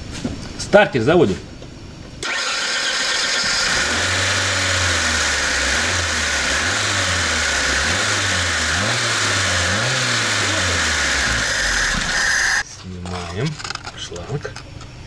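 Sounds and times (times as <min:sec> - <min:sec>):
car engine running: 0:02.3 - 0:12.6.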